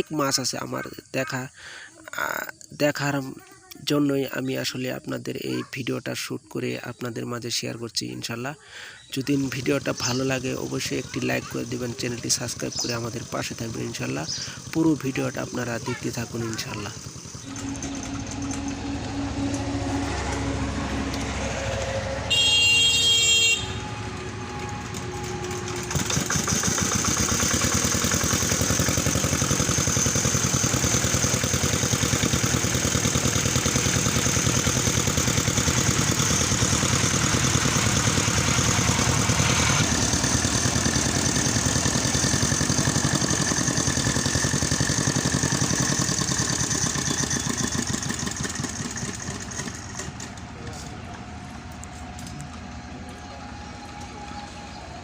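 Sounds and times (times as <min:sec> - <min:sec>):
small engine running: 0:00.0 - 0:55.0
vehicle horn: 0:17.4 - 0:26.1.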